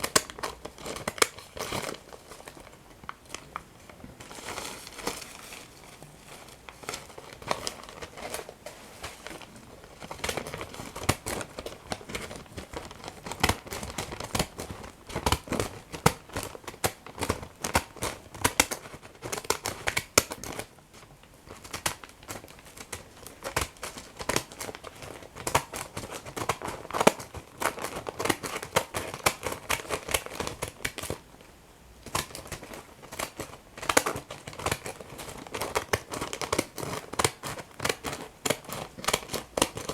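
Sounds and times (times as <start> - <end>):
paper crumpling and tearing: 4.2 - 20.7.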